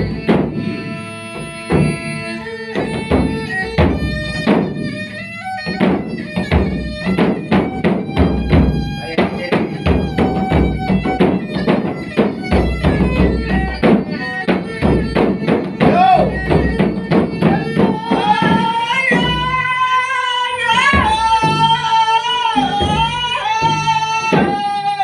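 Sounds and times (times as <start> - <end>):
quick percussive strikes: 0.0 - 19.8.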